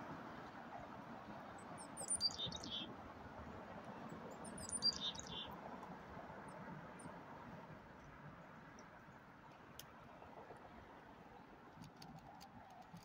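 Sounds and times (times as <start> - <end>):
small bird calling: 2.0 - 2.9, 4.6 - 5.5.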